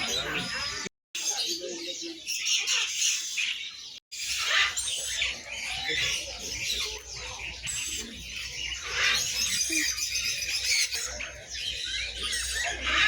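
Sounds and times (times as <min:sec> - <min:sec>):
caged birds chirping: 0:00.0 - 0:13.0.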